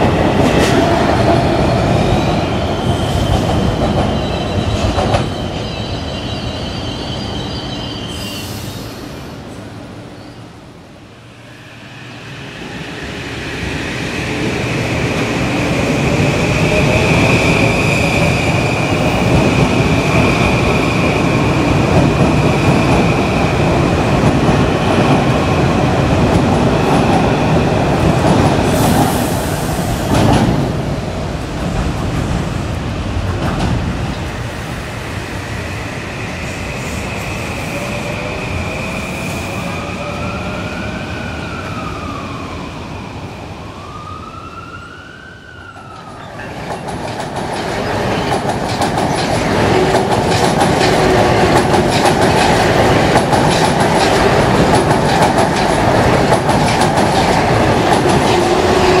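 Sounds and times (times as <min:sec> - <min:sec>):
wheels rumbling on rail: 0:46.0 - 0:59.0.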